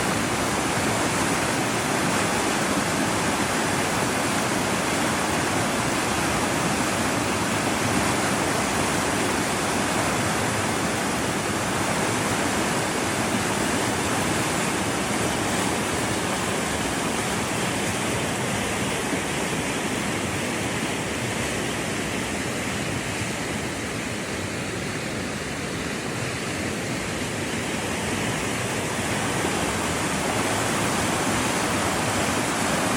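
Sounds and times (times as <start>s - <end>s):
river rushing over rocks: 0.0s - 32.9s.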